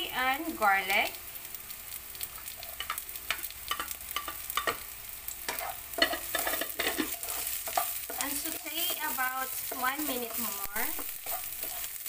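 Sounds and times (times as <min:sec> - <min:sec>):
vegetables sizzling in oil: 0:00.0 - 0:12.0
spatula scraping against a pan: 0:02.4 - 0:12.0.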